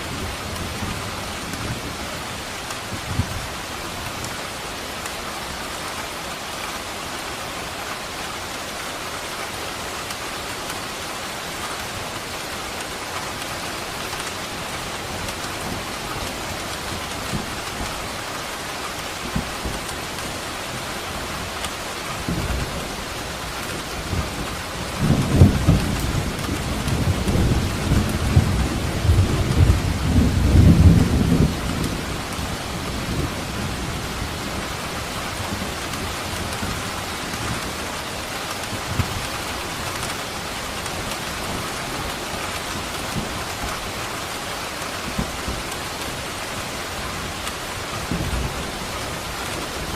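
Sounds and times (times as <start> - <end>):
steady rain falling: 0.0 - 49.9
thunder rumbling: 23.7 - 34.8.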